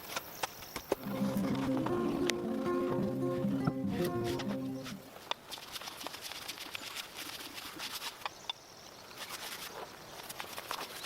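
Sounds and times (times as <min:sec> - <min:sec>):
small scattered clicks and crackles: 0:00.0 - 0:01.0, 0:05.2 - 0:11.0.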